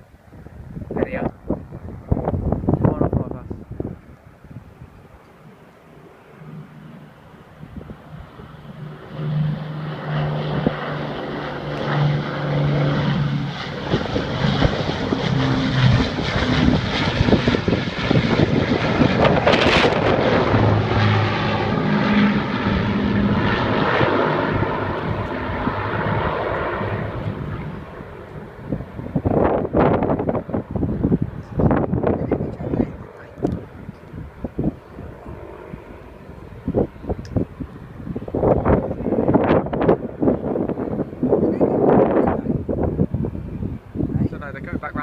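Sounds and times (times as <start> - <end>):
propeller aircraft engine drone: 0.0 - 45.0
sudden loud rush: 15.7 - 23.0.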